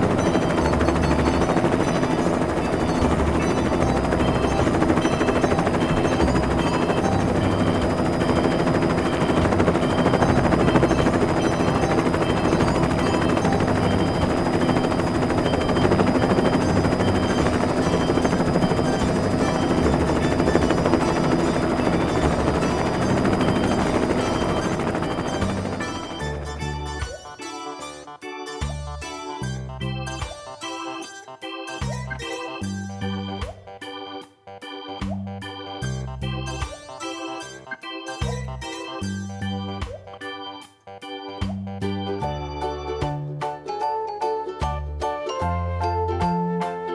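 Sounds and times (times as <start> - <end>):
helicopter rotor chopping: 0.0 - 27.6.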